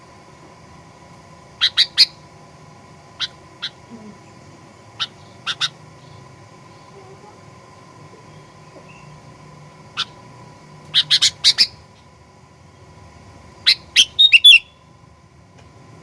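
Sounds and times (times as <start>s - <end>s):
faint steady hum: 0.0s - 16.0s
bird calling sharp notes: 1.6s - 2.2s, 3.2s - 3.9s, 5.0s - 6.3s, 10.9s - 11.8s, 13.7s - 14.8s.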